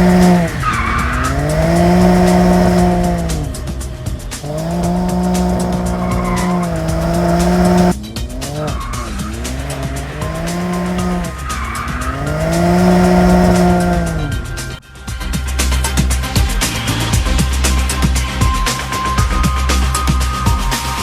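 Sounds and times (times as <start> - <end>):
car engine revving at high revs: 0.0 - 14.8.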